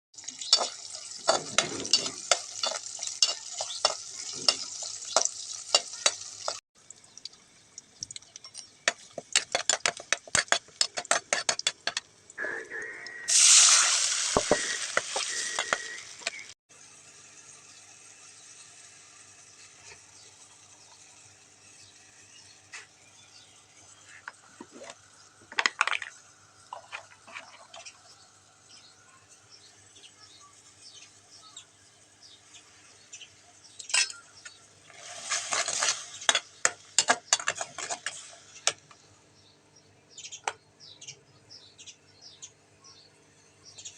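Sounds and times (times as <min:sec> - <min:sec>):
food sizzling in a pan: 0:00.2 - 0:06.6, 0:13.3 - 0:39.0
spoon clicking and scraping pan: 0:00.3 - 0:06.6, 0:08.4 - 0:12.1, 0:35.3 - 0:38.9.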